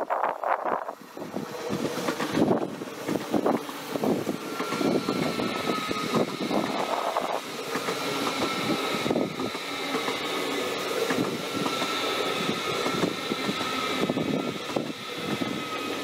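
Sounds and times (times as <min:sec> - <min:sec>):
train wheels clattering over rails: 0:01.0 - 0:16.0
thin high whine: 0:04.4 - 0:09.2.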